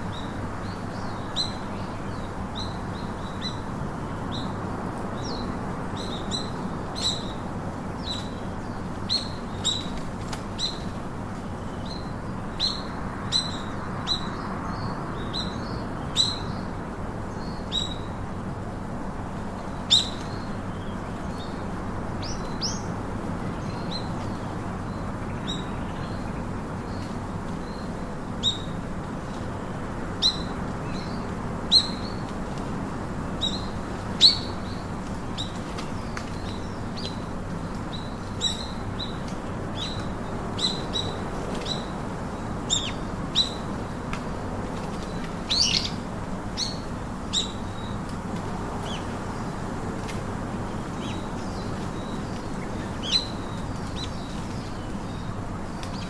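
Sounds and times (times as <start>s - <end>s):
steady background hiss: 0.0s - 56.0s
birds chirping: 33.3s - 56.0s.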